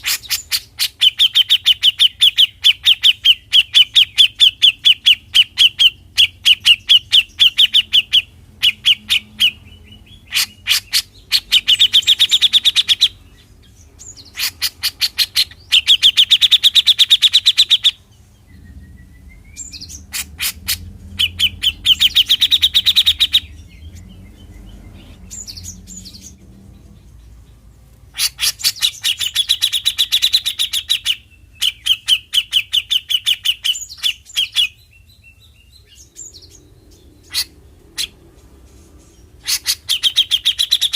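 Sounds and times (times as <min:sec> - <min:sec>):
bird rattling trill song: 0:00.0 - 0:34.9.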